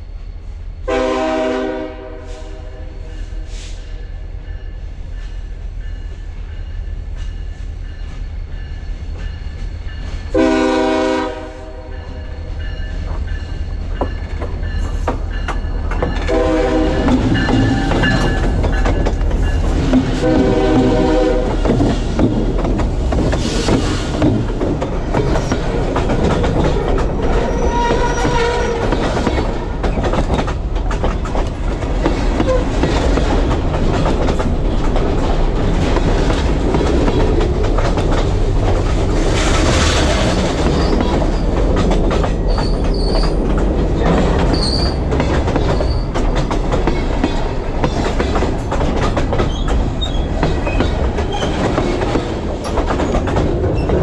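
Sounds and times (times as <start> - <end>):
freight train rumbling overhead: 0.0 - 54.0
wheels clicking over rail joints: 13.1 - 54.0
high wheel squeals: 27.2 - 29.1.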